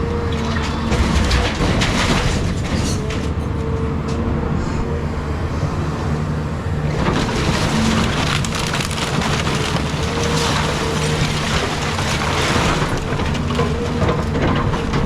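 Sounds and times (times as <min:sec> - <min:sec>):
excavator diesel engine running: 0:00.0 - 0:15.0
demolition debris crunching: 0:00.2 - 0:03.4, 0:06.6 - 0:15.0.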